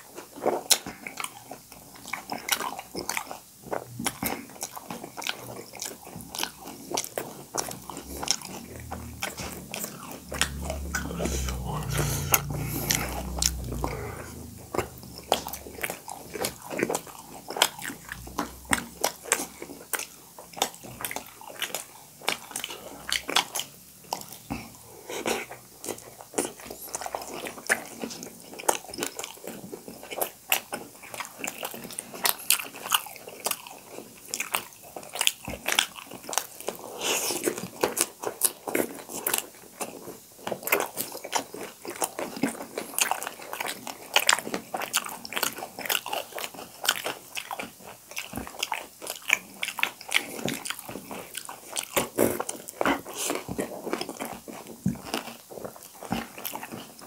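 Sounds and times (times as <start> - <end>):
chewing dumplings: 0.0 - 57.0.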